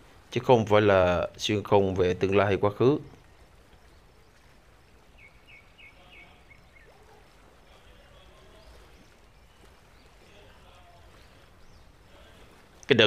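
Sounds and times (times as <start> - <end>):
small bird chirping: 3.7 - 12.2.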